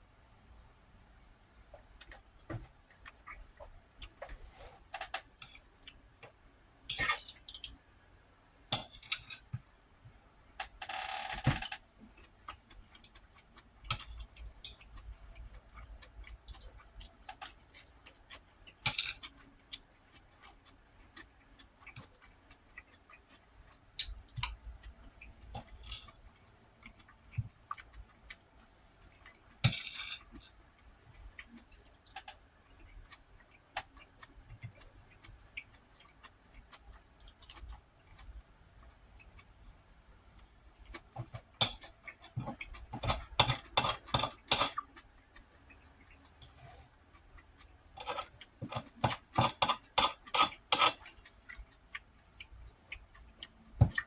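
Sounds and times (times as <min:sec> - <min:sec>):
chewing with wet mouth clicks: 0:12.0 - 0:29.4, 0:30.4 - 0:39.6, 0:40.4 - 0:54.0.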